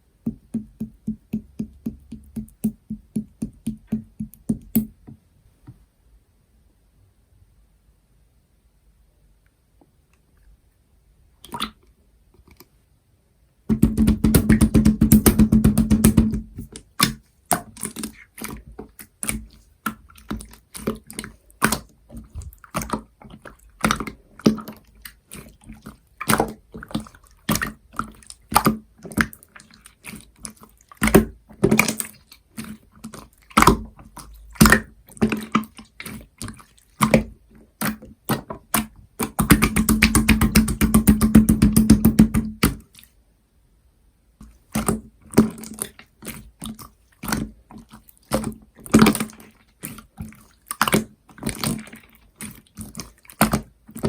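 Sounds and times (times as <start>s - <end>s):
slime squishing and popping: 13.7s - 29.4s, 31.0s - 42.9s.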